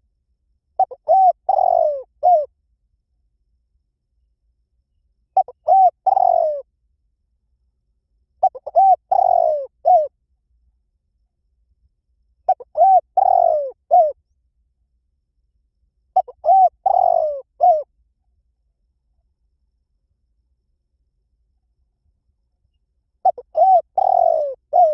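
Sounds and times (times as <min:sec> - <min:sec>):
dove cooing: 0:00.8 - 0:02.5, 0:05.4 - 0:06.7, 0:08.4 - 0:10.1, 0:12.5 - 0:14.2, 0:16.2 - 0:17.9, 0:23.2 - 0:24.9.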